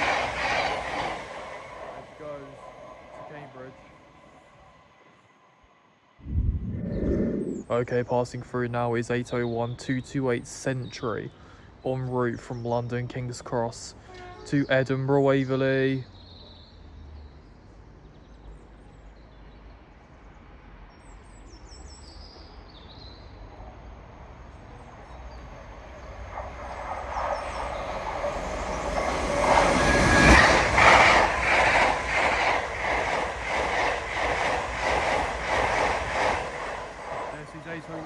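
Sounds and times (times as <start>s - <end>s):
electric train passing: 0.0s - 7.7s, 22.6s - 38.0s
high train whine: 0.0s - 7.9s, 22.5s - 38.0s
faint bird chirps: 24.5s - 32.5s.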